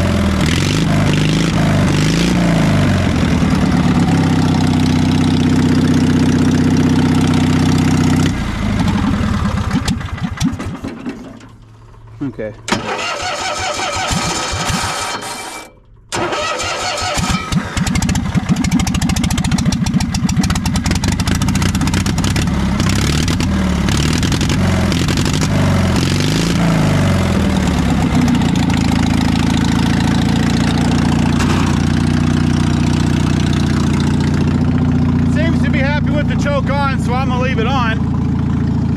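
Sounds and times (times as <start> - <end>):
engine running unevenly then idling: 1.0 - 12.6, 17.2 - 26.0, 26.8 - 38.9
engine cranking: 8.8 - 26.4.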